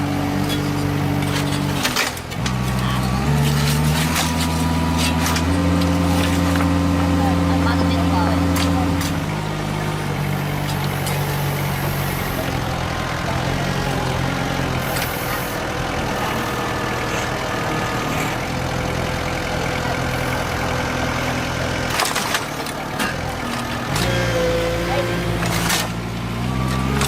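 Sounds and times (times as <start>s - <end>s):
heavy machine engine running: 0.0s - 27.0s.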